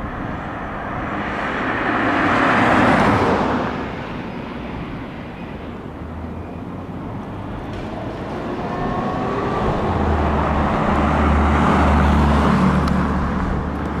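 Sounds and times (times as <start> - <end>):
motor vehicle running: 6.9 - 14.0.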